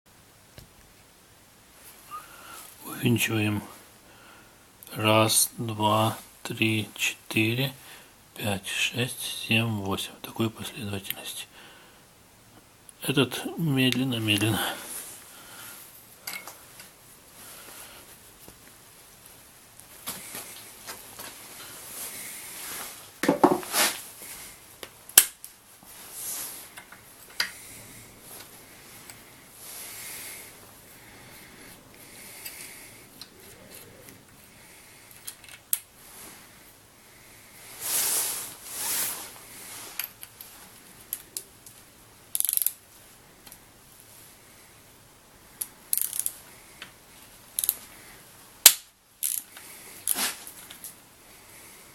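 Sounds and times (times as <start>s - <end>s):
metal tools clinking and clattering: 16.2s - 16.6s
ratchet wrench clicking: 42.3s - 42.7s, 45.9s - 46.3s, 49.2s - 49.5s.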